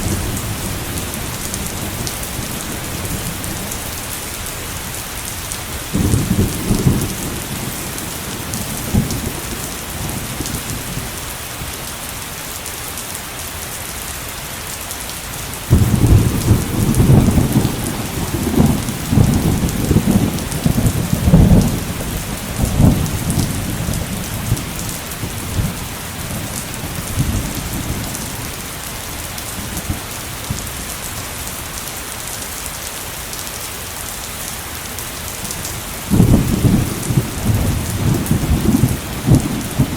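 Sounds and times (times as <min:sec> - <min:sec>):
rolling thunder: 0:00.0 - 0:11.1, 0:15.7 - 0:28.8, 0:35.5 - 0:39.9
heavy rain falling: 0:00.0 - 0:39.9.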